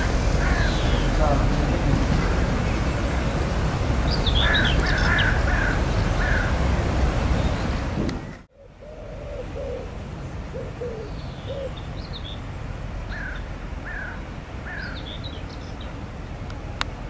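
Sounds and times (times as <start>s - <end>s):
birds calling: 0.0s - 16.0s
high bird chirps: 4.1s - 6.5s.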